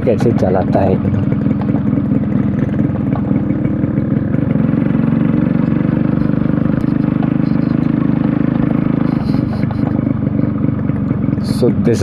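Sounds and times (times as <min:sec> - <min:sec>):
motorcycle two-stroke engine running: 0:00.0 - 0:12.0.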